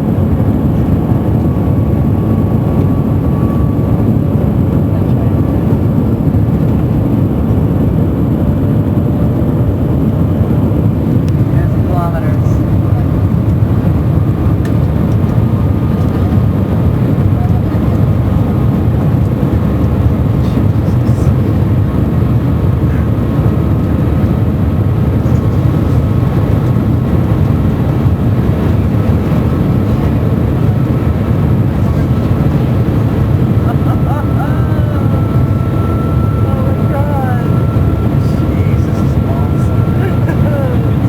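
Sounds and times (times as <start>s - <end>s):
faint steady whine: 0.0s - 41.0s
train cabin rushing rumble: 10.6s - 41.0s.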